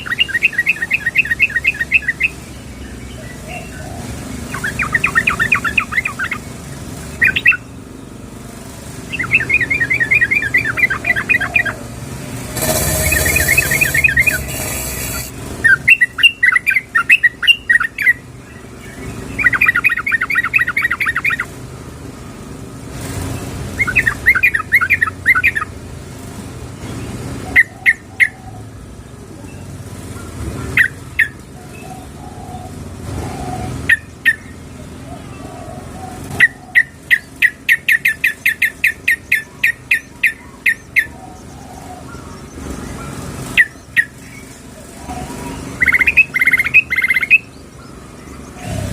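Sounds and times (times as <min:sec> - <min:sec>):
bird calling: 0:00.0 - 0:07.8, 0:08.9 - 0:21.6, 0:23.8 - 0:25.8, 0:27.4 - 0:28.8, 0:29.5 - 0:48.9
rushing noise: 0:11.8 - 0:15.6.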